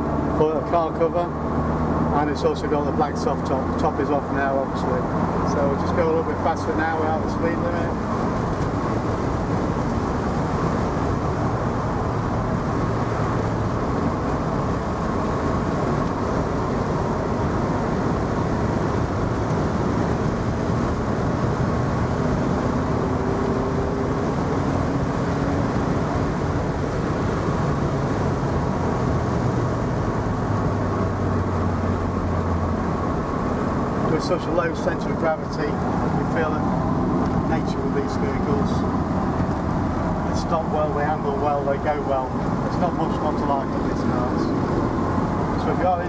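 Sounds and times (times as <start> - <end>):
car engine pulling: 0.0 - 46.0.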